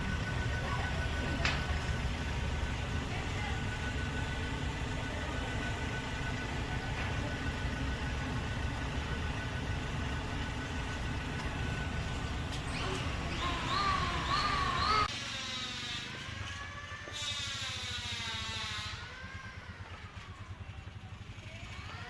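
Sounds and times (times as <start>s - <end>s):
engine low rumble: 0.0s - 22.0s
faint steady whine: 0.0s - 22.0s
warbling pitched call: 12.7s - 16.0s.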